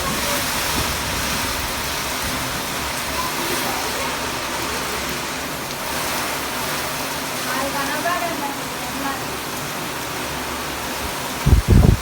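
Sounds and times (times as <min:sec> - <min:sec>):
wind buffeting microphone: 0:00.0 - 0:03.1, 0:11.4 - 0:12.0
strong wind: 0:00.0 - 0:04.5, 0:11.0 - 0:12.0
heavy rain hissing: 0:00.0 - 0:12.0.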